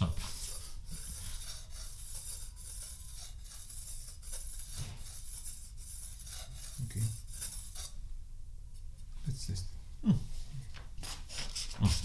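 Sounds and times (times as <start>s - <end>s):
knife scraping on lapping plate: 0.0s - 8.0s.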